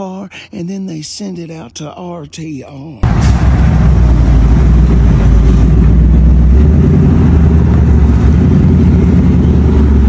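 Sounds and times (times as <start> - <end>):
car engine running loudly: 3.0 - 10.0.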